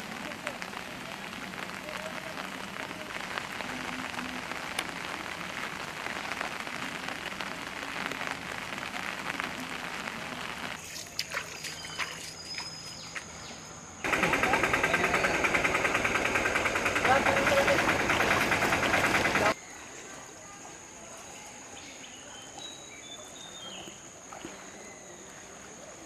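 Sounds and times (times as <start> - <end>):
heavy rain hissing: 0.0 - 11.2, 14.0 - 19.6
raindrops clicking on surfaces: 0.0 - 13.4.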